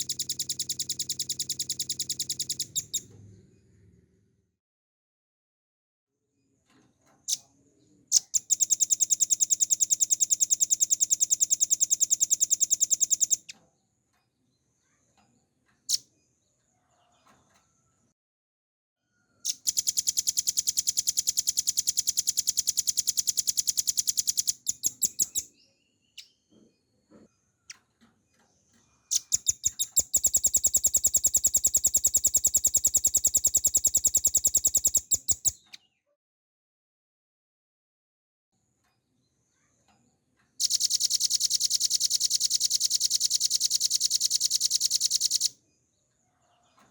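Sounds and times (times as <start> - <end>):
bird singing high-pitched trills: 0.0 - 3.0, 8.1 - 13.5, 19.5 - 26.4, 29.1 - 35.8, 40.6 - 45.5
bird sharp chips: 19.5 - 25.5, 29.1 - 35.8.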